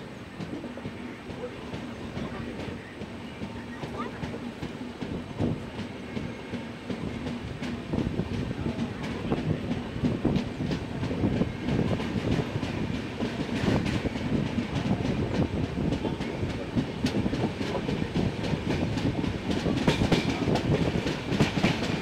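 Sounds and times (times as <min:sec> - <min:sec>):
train rumble and hum: 0:00.0 - 0:22.0
train wheels clacking: 0:00.0 - 0:22.0.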